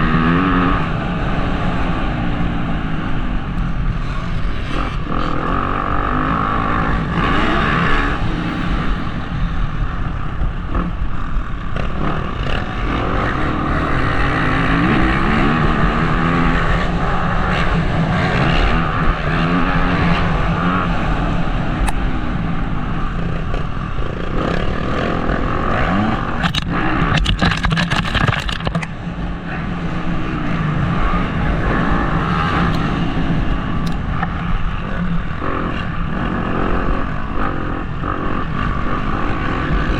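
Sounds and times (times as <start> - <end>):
motocross bike engine revving: 0.0 - 39.9
wind noise on microphone: 0.0 - 39.9
sharp clicks and rattles: 26.0 - 29.0.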